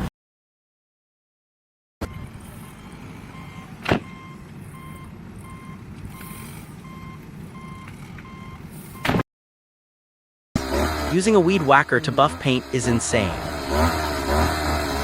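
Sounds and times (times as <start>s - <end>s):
engine running: 2.0s - 9.1s, 10.6s - 15.0s
reversing alarm beeping: 2.0s - 9.2s.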